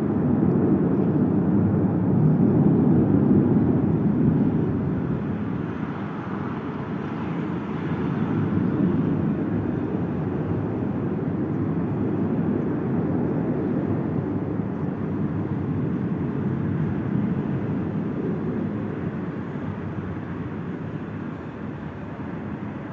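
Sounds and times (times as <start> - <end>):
airplane engine rumble: 0.0 - 22.9.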